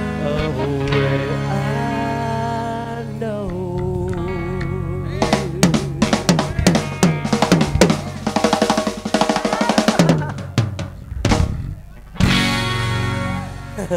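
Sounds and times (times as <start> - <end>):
band playing: 0.0 - 13.9
drum fill on snare and bass drum: 5.2 - 12.4.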